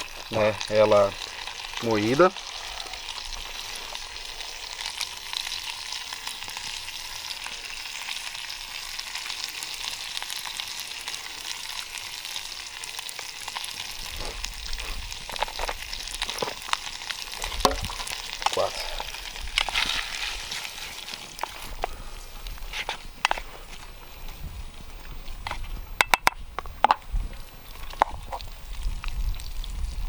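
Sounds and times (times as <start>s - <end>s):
fat sizzling in a pan: 0.0s - 30.0s
pan knocking: 25.4s - 27.1s.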